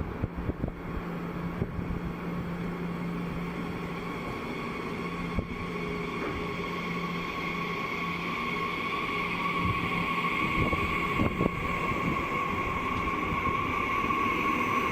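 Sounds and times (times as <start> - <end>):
electric train humming: 0.0 - 14.9
high whine: 0.0 - 14.9.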